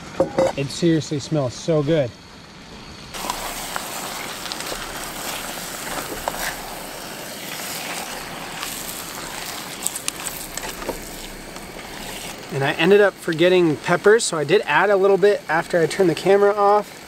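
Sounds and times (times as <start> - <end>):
noodles sizzling and bubbling: 3.1 - 17.0
spatula clicking and scraping: 3.2 - 13.5.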